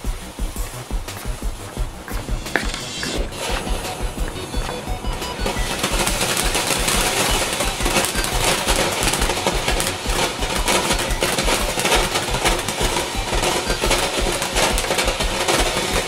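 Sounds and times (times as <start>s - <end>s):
firework crackling and popping: 0.0s - 16.0s.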